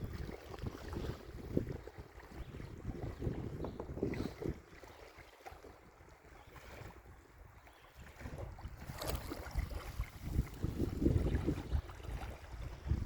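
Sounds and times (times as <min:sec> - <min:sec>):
wind gusting on microphone: 0:00.0 - 0:04.8, 0:08.0 - 0:13.0.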